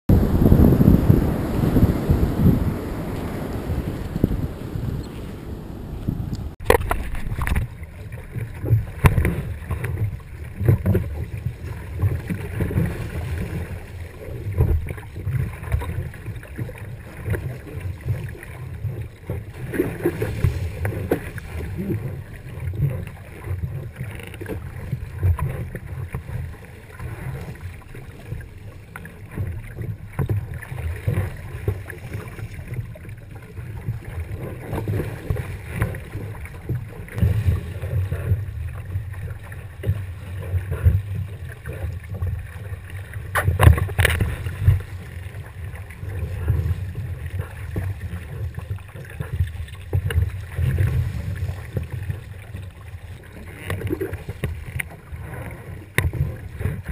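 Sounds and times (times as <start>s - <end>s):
wind on microphone: 0.1s - 28.5s, 53.4s - 56.9s
water rushing along hull: 0.1s - 56.9s.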